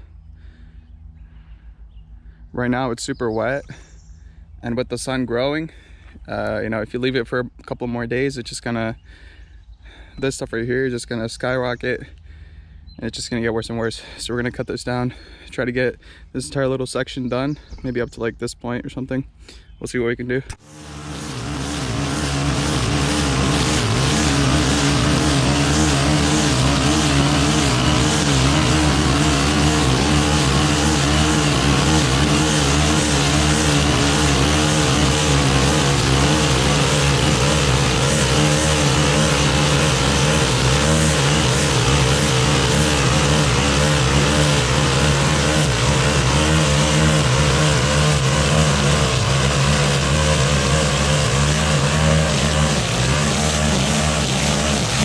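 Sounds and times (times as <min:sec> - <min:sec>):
brushcutter engine cutting grass: 0:20.5 - 0:55.0.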